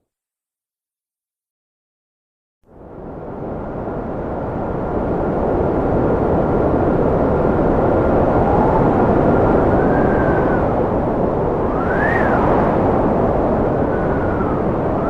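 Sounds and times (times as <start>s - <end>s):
wind rushing: 3.7s - 15.0s
high whistling howl: 8.2s - 11.0s, 11.6s - 15.0s.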